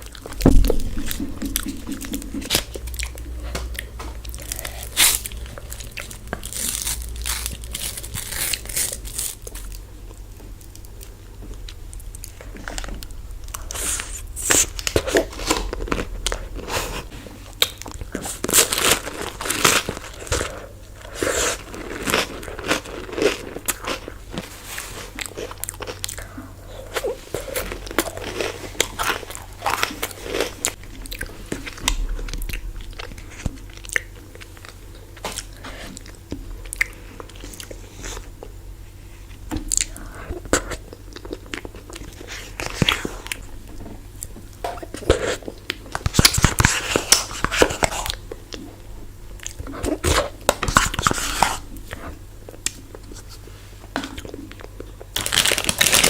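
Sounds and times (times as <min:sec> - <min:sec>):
chocolate shell crunching: 0:00.0 - 0:16.6, 0:54.2 - 0:56.0
wet chewing: 0:00.0 - 0:38.6.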